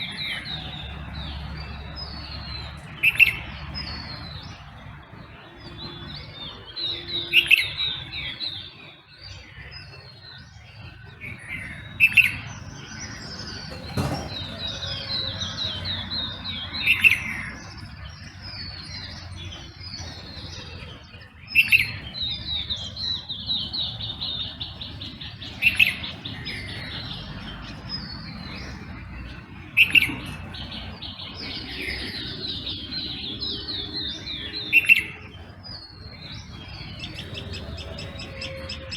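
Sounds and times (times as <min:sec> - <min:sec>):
birds chirping and trilling: 0:00.0 - 0:38.9
loud sharp bird call: 0:37.0 - 0:38.9.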